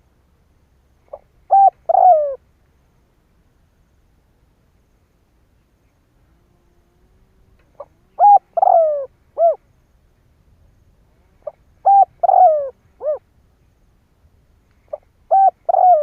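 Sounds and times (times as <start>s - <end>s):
dove cooing: 1.1s - 2.4s, 7.0s - 9.6s, 11.1s - 13.2s, 14.9s - 16.0s.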